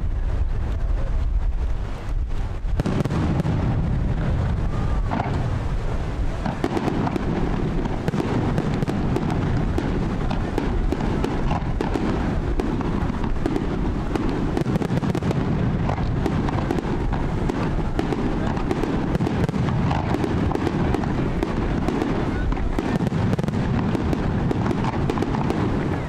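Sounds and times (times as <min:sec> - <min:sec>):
fireworks bursting: 0:00.0 - 0:26.0
low rumble: 0:00.0 - 0:26.0
dense crackling: 0:01.9 - 0:26.0.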